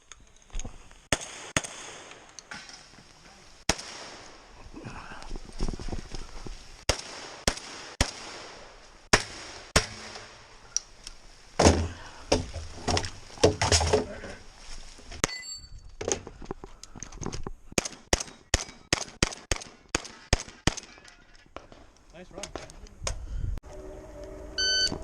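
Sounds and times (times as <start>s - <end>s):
gunshots: 1.1s - 2.2s, 17.8s - 21.0s.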